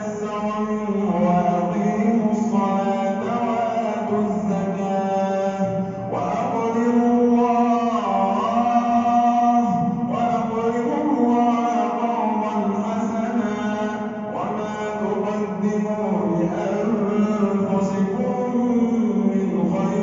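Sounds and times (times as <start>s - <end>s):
man chanting recitation: 0.0s - 20.0s.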